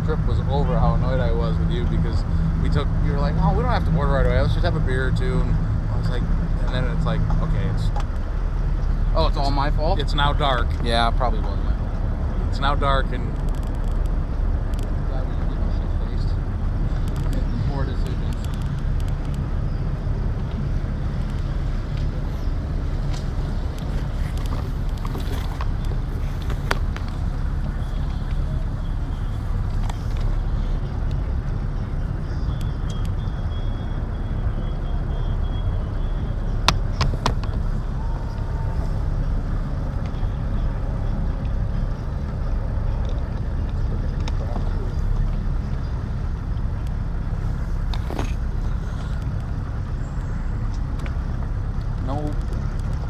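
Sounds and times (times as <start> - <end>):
motorboat engine drone: 0.0 - 53.0
water and wind noise: 0.0 - 53.0.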